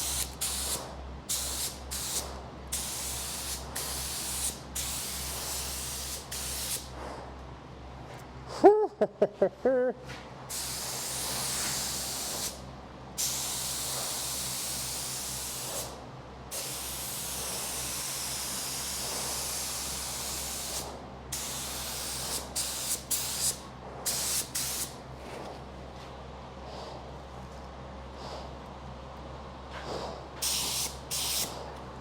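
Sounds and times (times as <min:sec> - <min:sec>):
paint spray gun hissing: 0:00.0 - 0:06.9, 0:10.5 - 0:12.6, 0:13.2 - 0:16.0, 0:16.6 - 0:24.9, 0:30.4 - 0:31.6.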